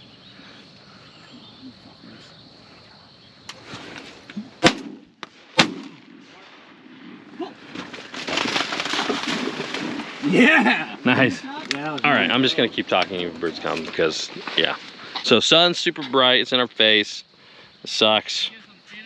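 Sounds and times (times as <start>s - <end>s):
shotgun shots: 4.6s - 7.3s.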